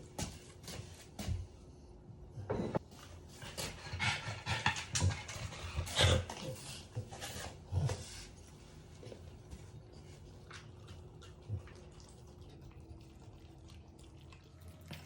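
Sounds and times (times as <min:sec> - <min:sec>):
dog chewing and smacking: 0:08.5 - 0:15.0.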